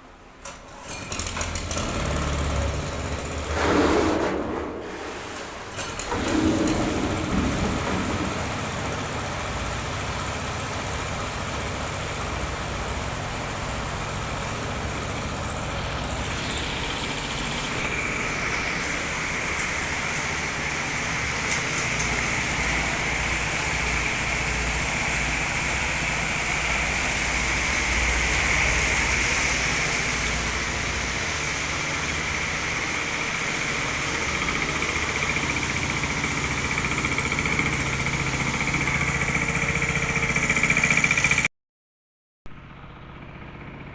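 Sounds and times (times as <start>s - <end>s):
truck engine running: 1.6s - 41.5s, 42.5s - 43.9s.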